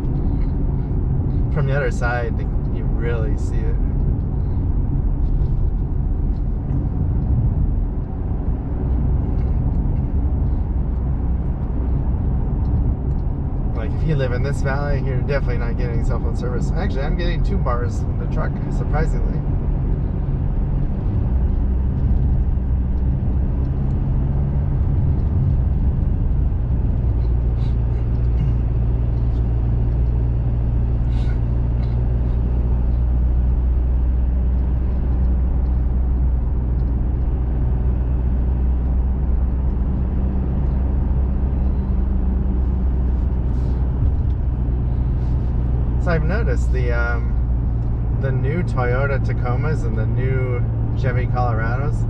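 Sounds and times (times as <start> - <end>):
engine drone: 0.0 - 52.0
tyre and road noise: 0.0 - 52.0.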